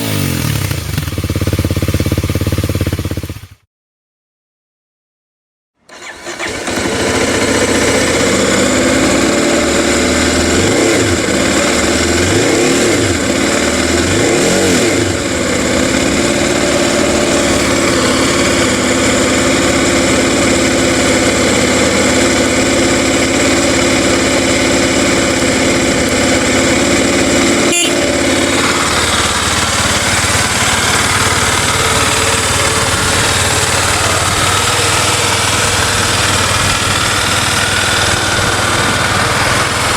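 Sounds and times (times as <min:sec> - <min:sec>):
engine running: 0:00.0 - 0:03.6, 0:05.9 - 0:39.9.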